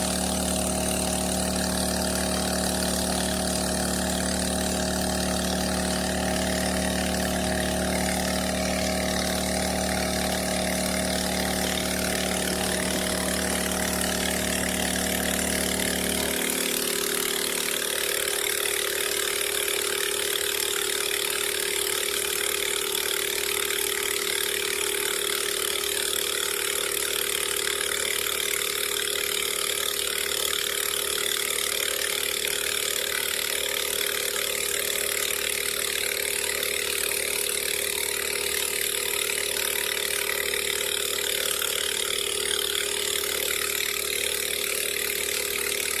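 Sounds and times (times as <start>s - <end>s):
water pump engine running: 0.0s - 46.0s.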